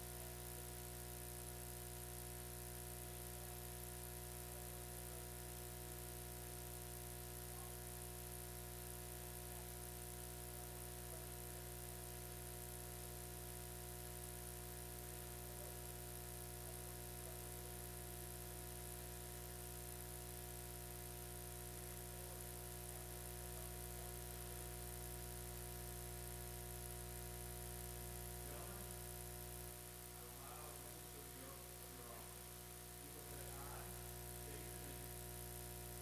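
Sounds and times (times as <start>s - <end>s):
electrical hum and buzz: 0.0s - 36.0s.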